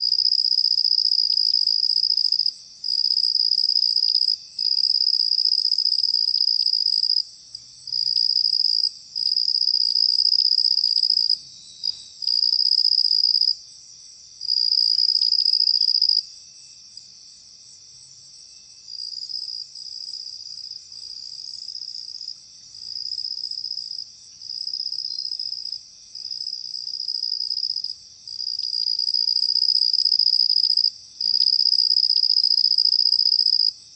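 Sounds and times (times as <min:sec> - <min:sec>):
insects trilling: 0:00.0 - 0:33.9.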